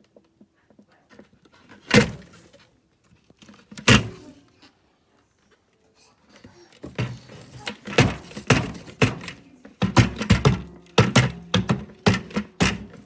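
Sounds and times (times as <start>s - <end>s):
hard knocks and clunks: 6.8s - 13.0s.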